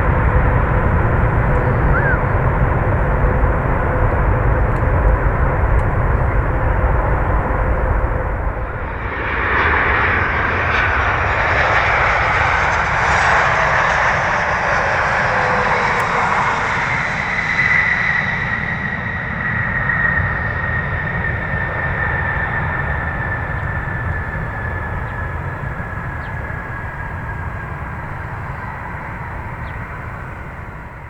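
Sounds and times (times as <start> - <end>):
low rumble: 0.0 - 17.4
jet airliner landing: 0.0 - 31.0
jet engine whine falling in pitch: 0.0 - 31.0.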